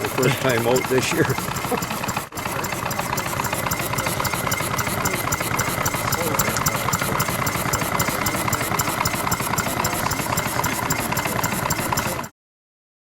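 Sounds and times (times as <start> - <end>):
model engine running: 0.0 - 12.3.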